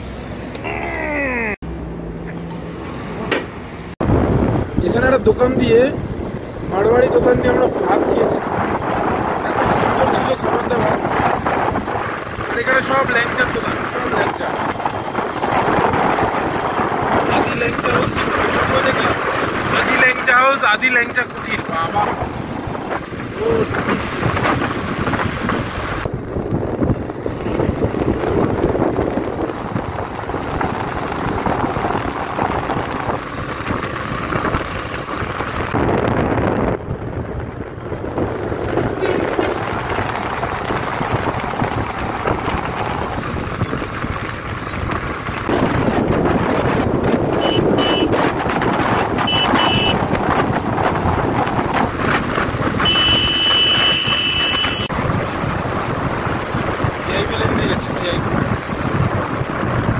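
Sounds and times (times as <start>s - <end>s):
road noise: 0.0s - 59.9s
motorcycle engine running: 3.2s - 59.9s
wind buffeting microphone: 3.4s - 59.9s
short horn toots: 47.4s - 48.2s, 49.2s - 50.0s, 52.8s - 54.9s.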